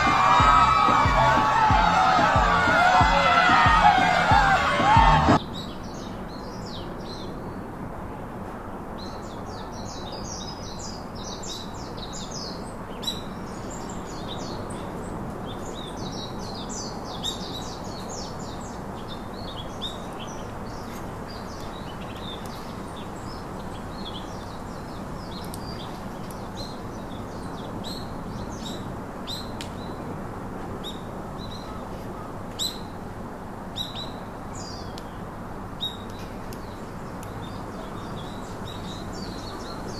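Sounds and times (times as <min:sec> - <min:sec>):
birds chirping: 0:00.0 - 0:07.6, 0:33.7 - 0:39.9
steady background hiss: 0:04.2 - 0:39.9.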